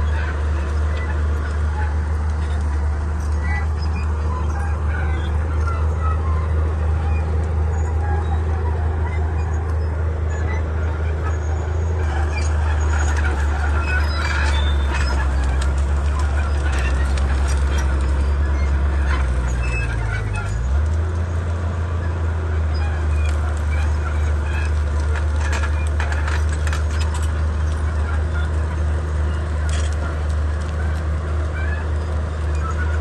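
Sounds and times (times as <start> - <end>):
bulldozer diesel engine running: 0.0 - 33.0
clicks and clanks: 12.0 - 21.3, 23.0 - 33.0.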